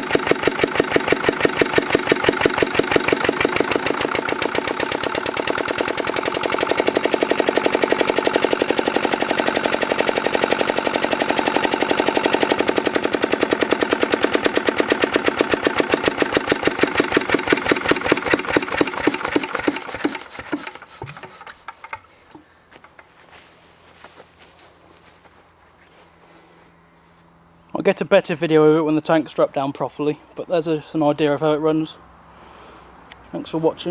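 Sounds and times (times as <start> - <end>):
diesel engine running fast: 0.0 - 22.8.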